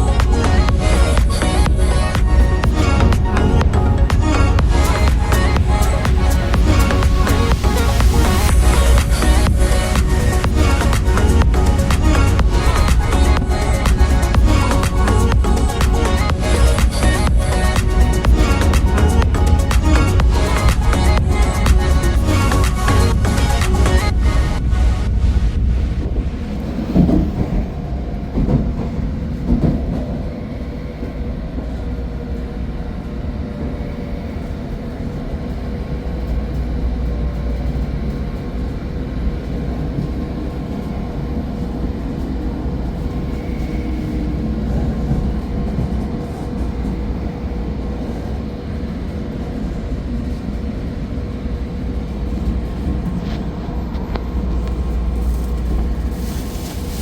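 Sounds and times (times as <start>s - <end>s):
faint steady hum: 0.0s - 29.5s
train rumbling: 0.0s - 57.0s.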